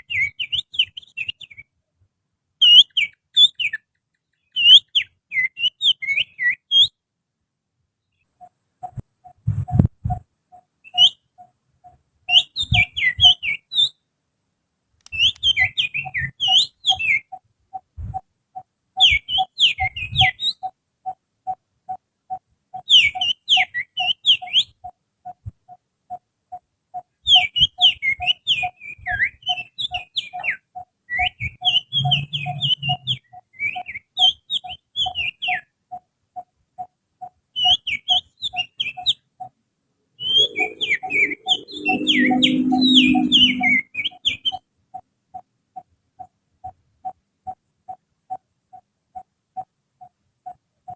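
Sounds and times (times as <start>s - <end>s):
finger whistling birdsong: 0.0s - 1.7s, 2.6s - 7.0s, 12.3s - 14.0s, 15.0s - 17.4s, 19.0s - 20.7s, 27.3s - 35.7s, 37.6s - 39.2s, 40.2s - 44.6s.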